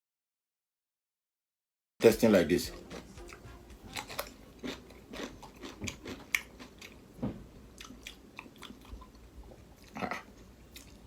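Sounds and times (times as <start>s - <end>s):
person chewing cucumber: 2.7s - 11.0s.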